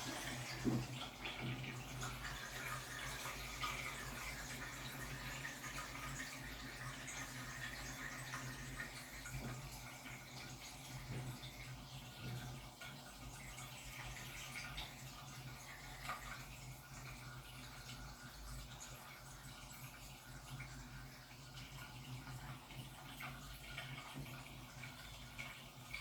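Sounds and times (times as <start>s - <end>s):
water splashing in washing machine drum: 0.0s - 7.0s
washing machine hum: 0.0s - 26.0s.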